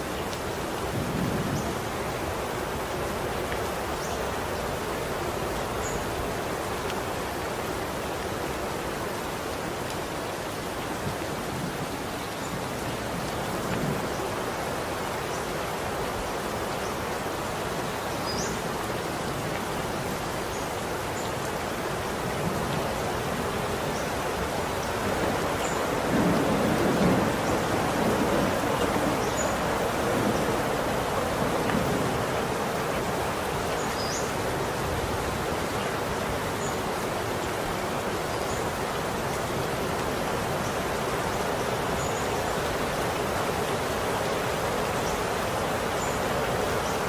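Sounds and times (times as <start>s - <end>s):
steady rain hiss: 0.0s - 47.0s.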